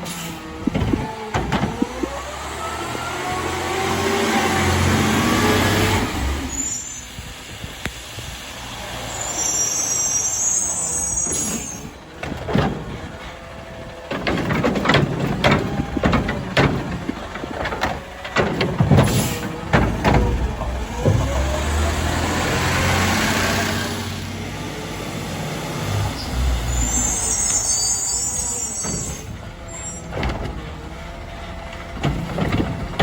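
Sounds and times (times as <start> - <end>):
garbage truck engine running: 0.0 - 6.5, 11.1 - 33.0
metal clanks and bangs: 12.2 - 22.6, 31.7 - 33.0.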